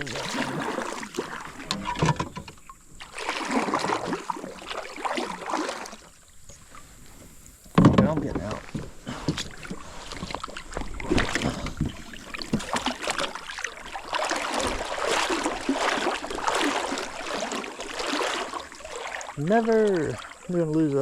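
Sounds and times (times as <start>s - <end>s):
water splashing: 0.0s - 21.0s
knocks on kayak: 7.7s - 8.9s.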